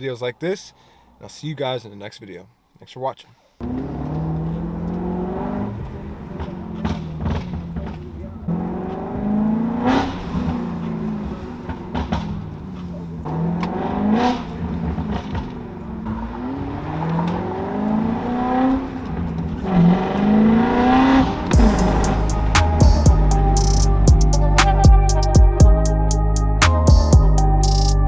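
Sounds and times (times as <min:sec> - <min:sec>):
car engine revving: 0:03.6 - 0:28.0
music: 0:21.6 - 0:28.0.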